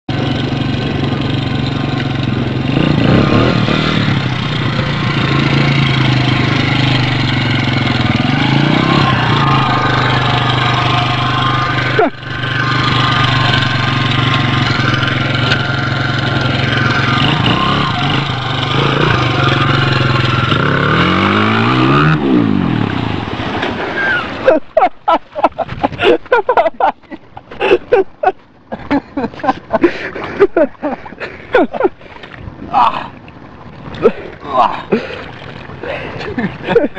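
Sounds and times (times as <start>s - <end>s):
dirt bike engine running: 0.1s - 23.6s.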